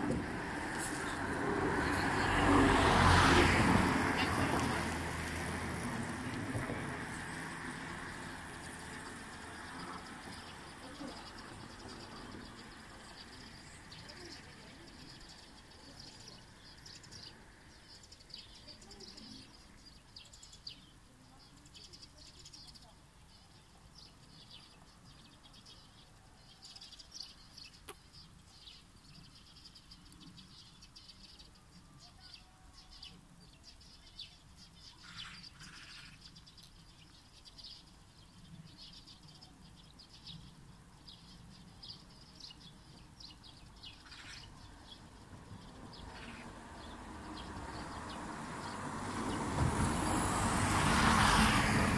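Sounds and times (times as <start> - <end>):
faint birds chirping: 6.1 - 51.6.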